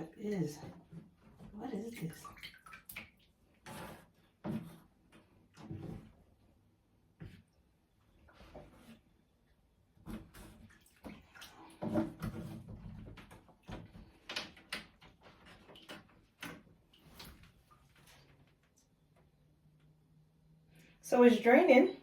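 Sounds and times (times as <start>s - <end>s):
water splashing in bathtub: 0.0s - 6.3s, 10.0s - 18.9s.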